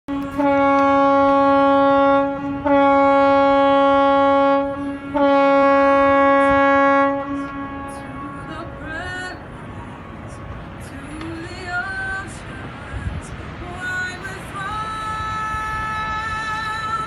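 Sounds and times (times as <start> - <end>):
ship's horn blasts: 0.1 - 11.9.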